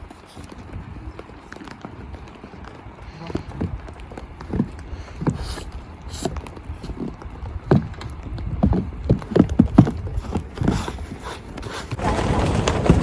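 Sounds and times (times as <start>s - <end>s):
low knocks and thumps: 6.2s - 13.0s.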